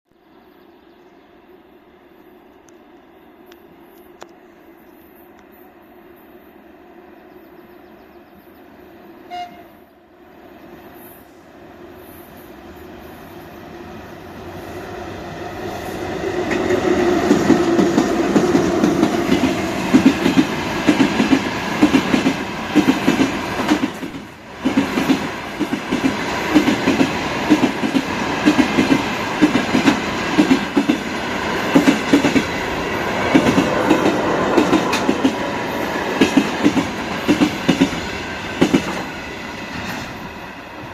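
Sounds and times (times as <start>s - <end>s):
train rumble passing: 10.1s - 40.9s
wheels clacking over rail joints: 16.4s - 40.3s.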